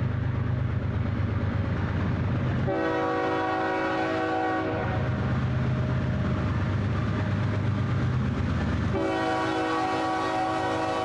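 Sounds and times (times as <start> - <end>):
train rumbling past: 0.0 - 11.0
locomotive horn blast: 2.7 - 5.1, 8.9 - 11.0.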